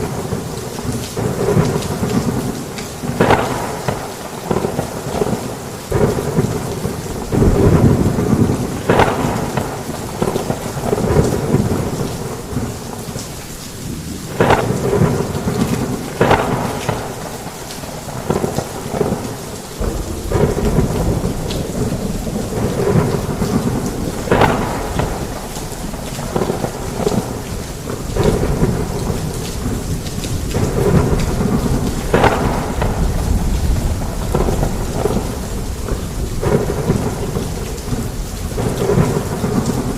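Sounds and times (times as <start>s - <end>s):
low rumble of thunder: 0.0s - 13.2s, 13.8s - 39.9s
heavy rain: 0.0s - 39.9s.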